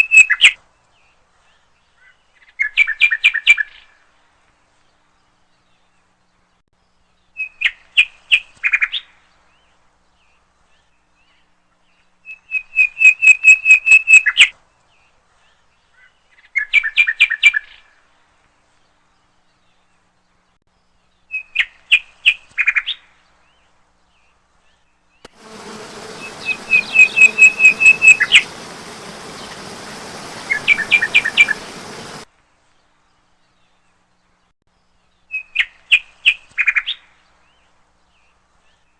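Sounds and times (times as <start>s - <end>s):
songbird singing: 25.3s - 32.2s
steady hiss: 25.3s - 32.3s.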